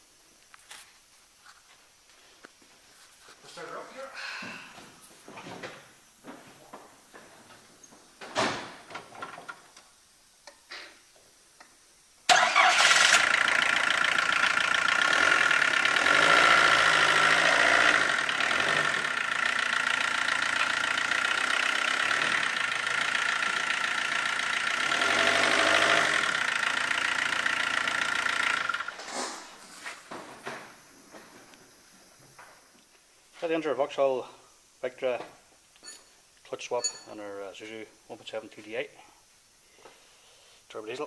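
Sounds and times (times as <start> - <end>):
diesel engine running with whine: 12.3 - 29.0.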